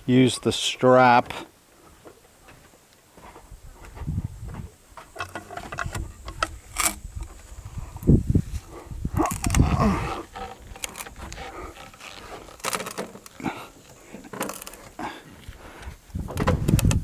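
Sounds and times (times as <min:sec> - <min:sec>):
wood and tools knocking: 0:05.0 - 0:07.4, 0:09.2 - 0:15.0, 0:16.2 - 0:17.0
man grunting with effort: 0:09.1 - 0:10.4.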